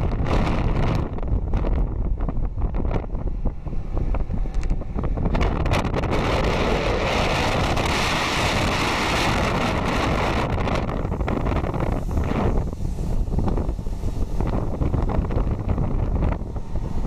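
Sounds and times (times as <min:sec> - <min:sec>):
low rumble: 0:00.0 - 0:17.0
wind buffeting microphone: 0:00.0 - 0:17.0
rushing hiss: 0:10.8 - 0:17.0.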